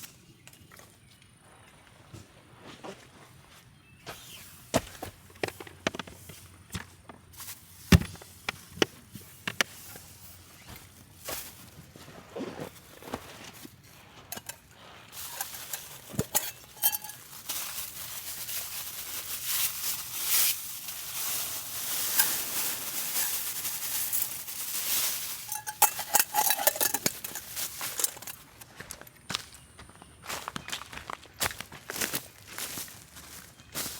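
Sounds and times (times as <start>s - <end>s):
cookware clinking and knocking: 16.1s - 17.2s, 25.5s - 28.4s
steady hiss: 17.4s - 27.2s.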